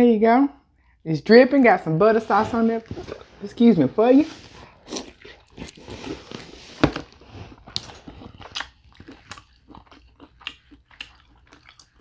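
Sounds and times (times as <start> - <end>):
person biting and chewing: 4.7 - 12.0.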